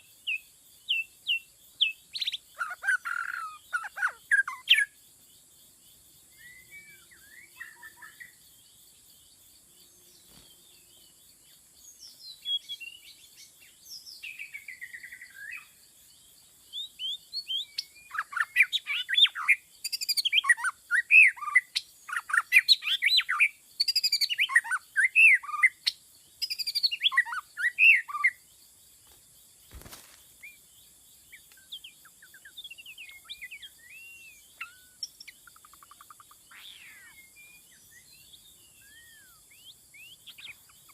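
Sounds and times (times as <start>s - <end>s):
bird singing whistled phrases: 32.3s - 35.1s, 36.5s - 40.6s.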